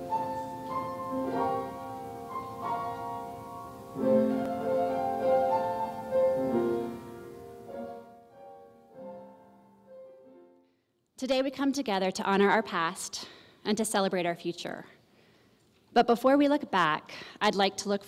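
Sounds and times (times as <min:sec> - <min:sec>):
slow piano chords: 0:00.0 - 0:10.6.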